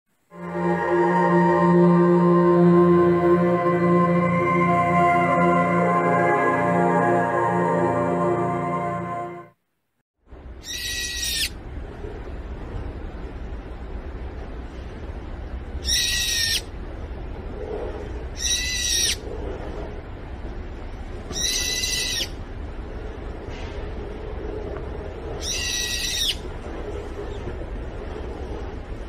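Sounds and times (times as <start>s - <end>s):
steady low rumble: 10.2s - 29.0s
bird calling: 25.4s - 26.4s.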